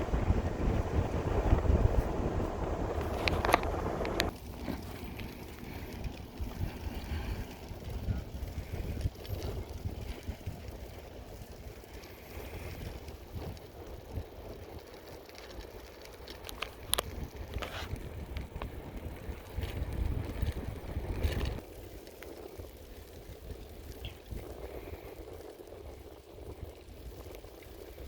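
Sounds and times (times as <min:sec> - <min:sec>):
wind on microphone: 0:00.0 - 0:15.0, 0:16.4 - 0:21.6, 0:22.6 - 0:28.0
bicycle tyres rumbling: 0:00.0 - 0:28.0
bicycle clicks and rattles: 0:02.9 - 0:28.0.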